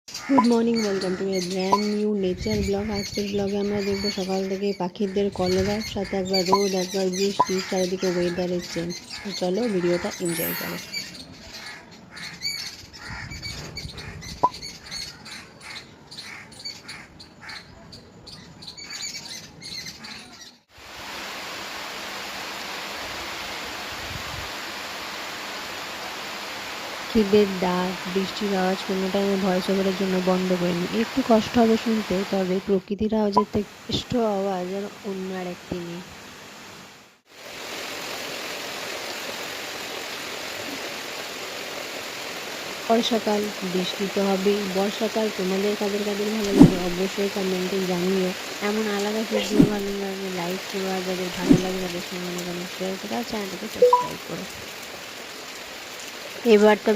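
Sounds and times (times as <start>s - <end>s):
birds chirping: 0.1s - 20.7s, 46.3s - 47.2s, 49.0s - 50.0s, 51.2s - 52.1s
steady rain: 20.7s - 56.9s.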